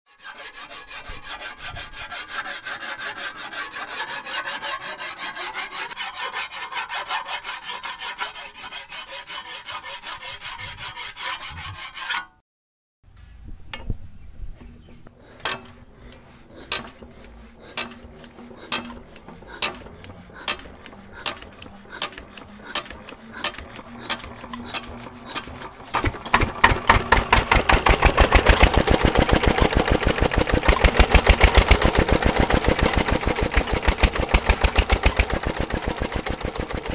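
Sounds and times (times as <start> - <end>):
chaff cutter chopping fodder: 14.9 - 36.9
diesel engine running: 15.0 - 36.9.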